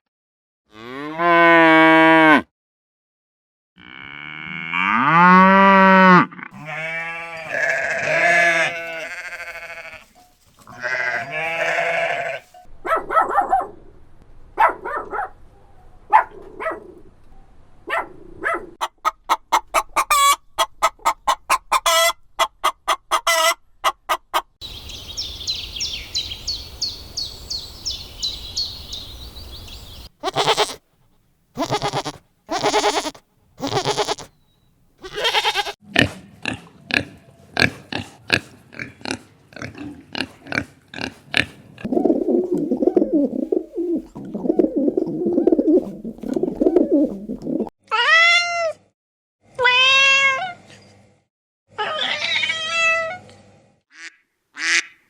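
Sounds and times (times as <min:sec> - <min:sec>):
hen clucking: 0:18.8 - 0:24.6, 0:30.2 - 0:30.8, 0:31.6 - 0:34.4, 0:35.0 - 0:35.8
cat meowing: 0:30.2 - 0:30.8, 0:31.6 - 0:34.3, 0:35.0 - 0:35.8
pigs grunting: 0:35.0 - 0:42.0.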